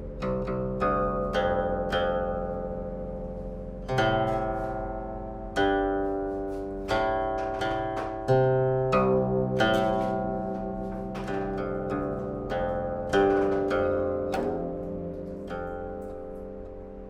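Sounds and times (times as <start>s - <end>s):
plucked string chords: 0.0s - 17.0s.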